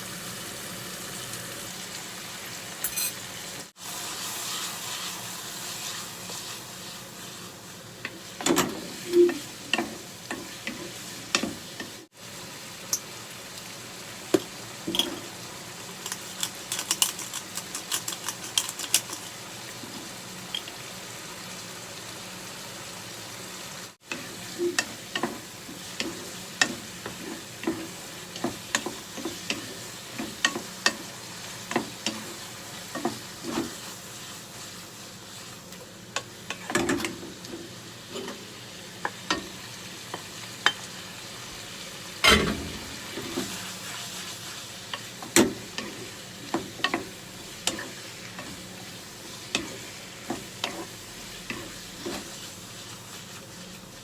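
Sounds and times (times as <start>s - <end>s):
food sizzling in a pan: 0.0s - 54.0s
spatula scraping and knocking pan: 42.2s - 52.5s.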